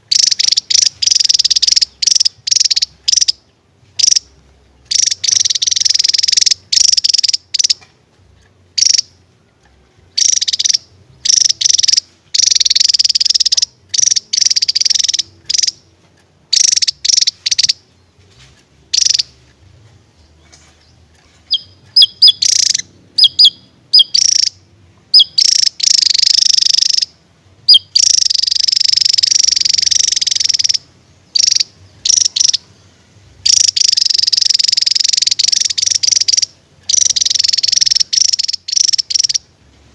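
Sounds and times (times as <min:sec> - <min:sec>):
bird whistled notes: 0:21.5 - 0:24.5, 0:25.2 - 0:27.1, 0:27.7 - 0:30.8
bird buzzing trills: 0:21.5 - 0:24.6, 0:33.5 - 0:39.4.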